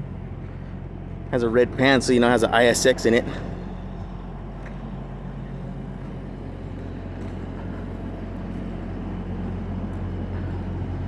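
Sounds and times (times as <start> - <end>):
heavy engine idling: 0.0 - 11.0.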